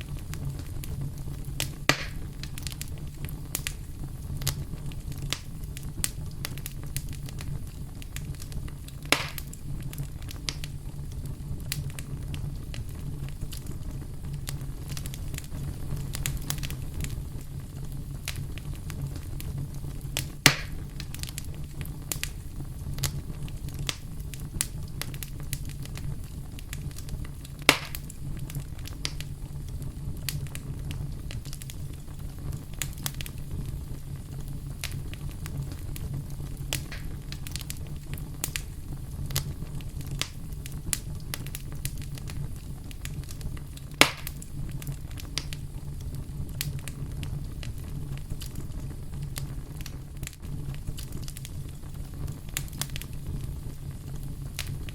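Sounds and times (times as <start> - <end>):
campfire crackling: 0.0 - 54.9
sharp fire pops: 0.0 - 54.9.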